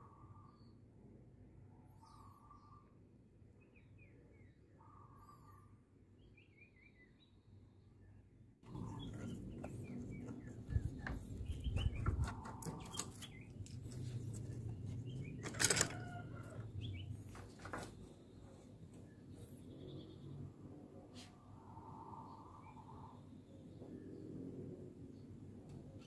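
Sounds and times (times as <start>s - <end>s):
small birds chirping: 1.8s - 20.6s
rustling and knocking: 8.7s - 18.2s.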